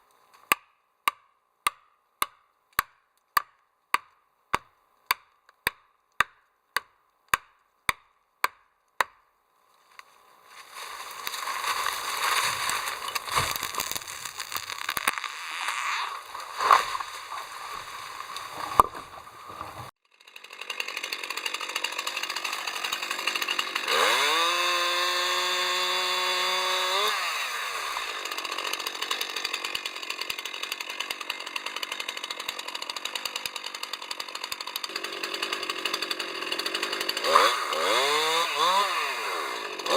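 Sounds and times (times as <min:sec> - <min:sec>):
chainsaw cutting wood: 0:09.8 - 0:39.9.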